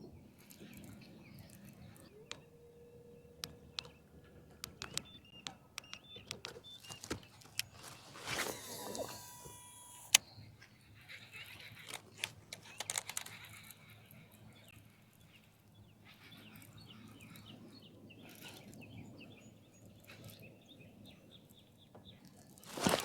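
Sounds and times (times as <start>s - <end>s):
songbirds chirping: 0.0s - 23.0s
sharp clicks and taps: 3.4s - 7.8s.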